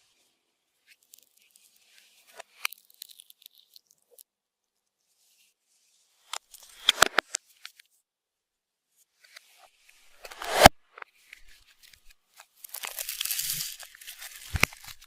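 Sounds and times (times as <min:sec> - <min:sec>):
slime clicks and crackles: 0:02.3 - 0:04.3, 0:12.6 - 0:15.0.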